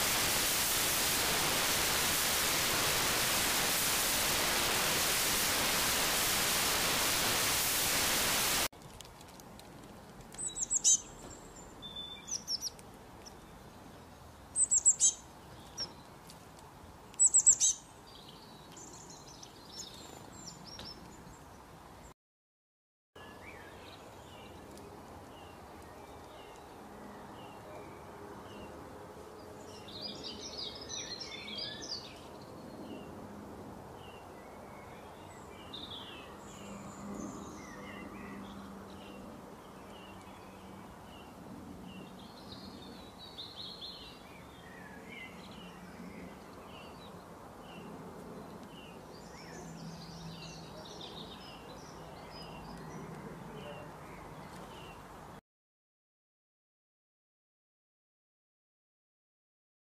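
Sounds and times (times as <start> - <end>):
songbirds chirping: 10.2 - 22.1, 23.2 - 33.2, 33.9 - 55.4.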